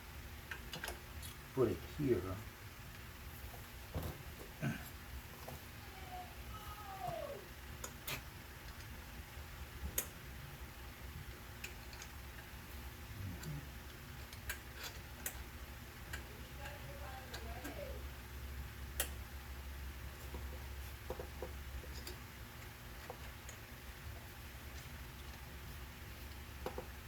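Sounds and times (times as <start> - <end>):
steady low hum: 0.0 - 27.0
small parts clicking and tapping: 0.4 - 1.4, 7.8 - 9.0, 11.1 - 12.6, 13.4 - 18.0, 20.1 - 27.0.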